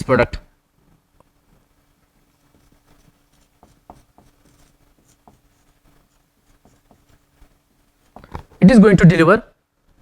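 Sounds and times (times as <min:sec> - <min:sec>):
steady low hum: 0:00.0 - 0:08.8
light taps and scratches: 0:01.5 - 0:08.6.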